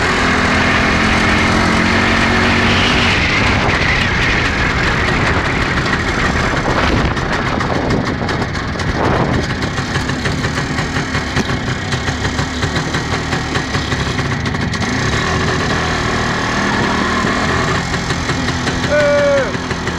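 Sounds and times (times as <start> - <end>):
two-stroke motorcycle engine running: 0.0 - 19.9.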